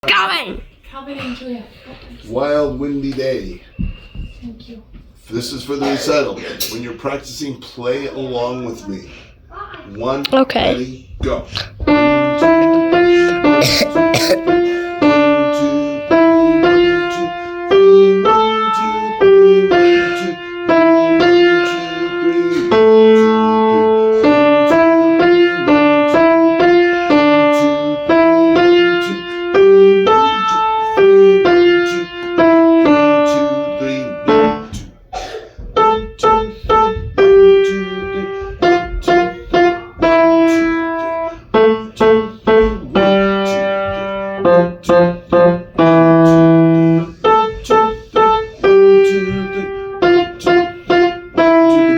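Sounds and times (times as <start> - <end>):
piano playing lively melody: 11.8 - 34.8, 35.8 - 51.9.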